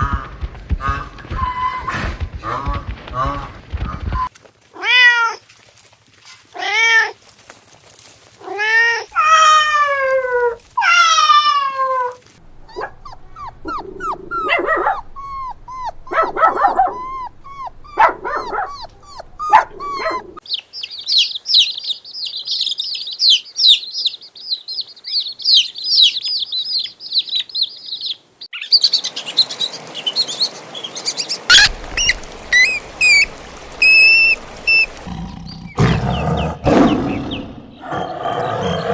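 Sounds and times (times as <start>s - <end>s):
farm animal calling: 12.6s - 29.0s, 31.1s - 38.9s
chicks peeping: 18.8s - 30.2s.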